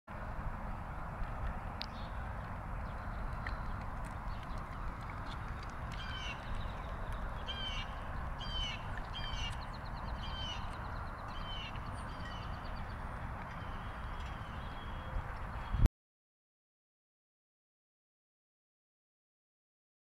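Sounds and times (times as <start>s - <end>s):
steady low rumble: 0.1s - 15.9s
birds calling harshly: 2.9s - 15.8s.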